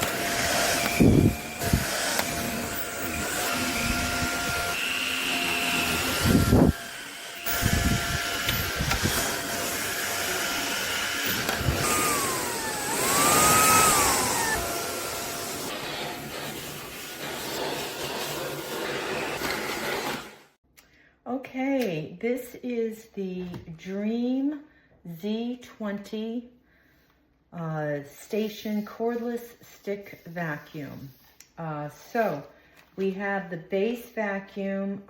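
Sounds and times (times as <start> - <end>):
stick vacuum running: 0.0 - 20.4.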